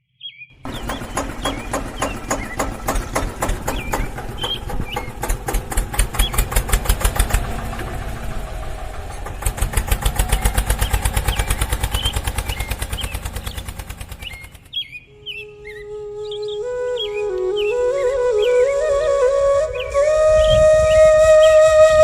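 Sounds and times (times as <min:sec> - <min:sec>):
birds chirping: 0:00.0 - 0:22.0
small engine putting: 0:00.6 - 0:14.9.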